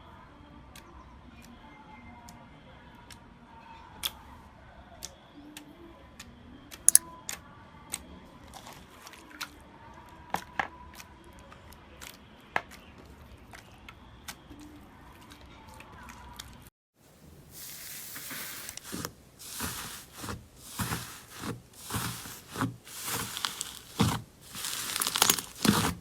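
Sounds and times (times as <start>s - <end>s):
slime clicking and popping: 21.9s - 26.0s.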